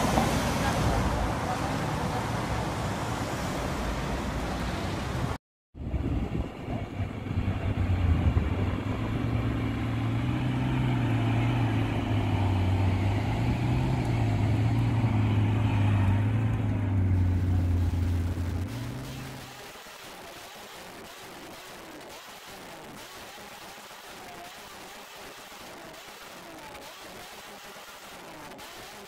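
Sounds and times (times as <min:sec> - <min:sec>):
car engine idling: 0:08.6 - 0:19.4.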